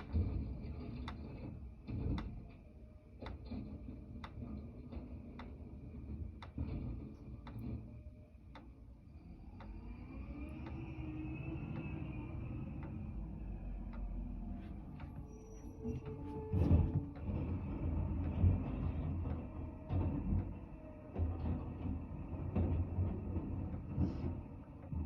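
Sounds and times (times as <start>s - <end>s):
rising whine: 7.8s - 22.3s
garbage truck rumbling: 9.8s - 25.0s.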